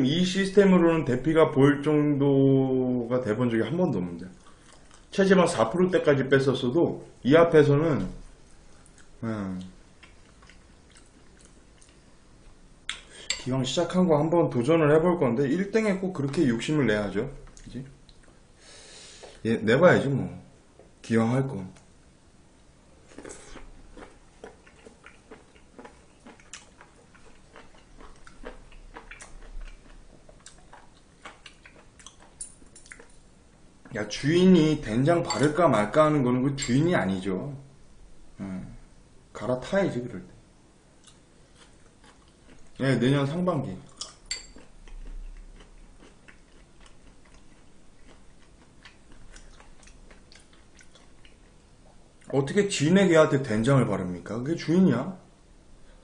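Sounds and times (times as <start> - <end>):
person chewing food: 4.4 - 5.1, 8.4 - 13.4, 23.0 - 33.3, 41.0 - 42.8, 43.9 - 52.3.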